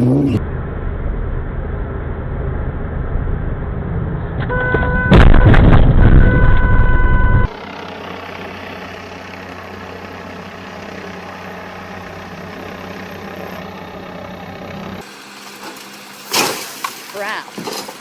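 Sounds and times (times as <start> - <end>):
road traffic noise: 0.0 - 18.0
vehicle engine humming: 0.0 - 18.0
car horn: 4.4 - 7.5.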